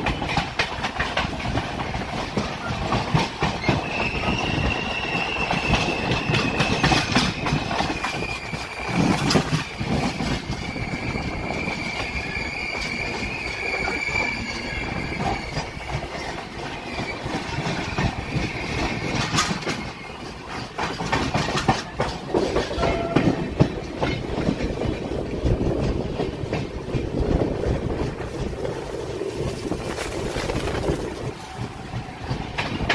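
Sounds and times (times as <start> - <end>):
train wheels on track: 0.0 - 32.9
high wavering wheel squeal: 3.6 - 20.4
clicks over rail joints: 20.5 - 27.3.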